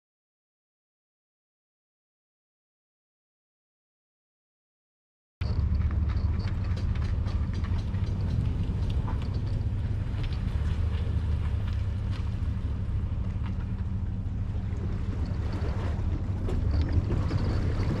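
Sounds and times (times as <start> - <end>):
light ticks and knocks: 5.4 - 12.4
boat engine rumble: 5.4 - 18.0.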